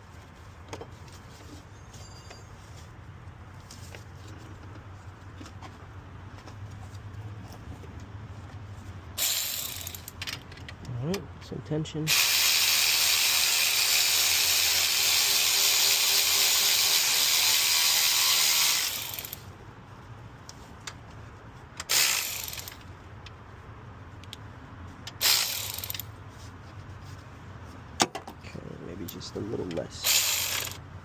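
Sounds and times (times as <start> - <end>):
ratchet wrench turning: 9.2 - 10.6, 12.1 - 19.5, 21.8 - 22.9, 25.1 - 26.1, 30.0 - 30.8.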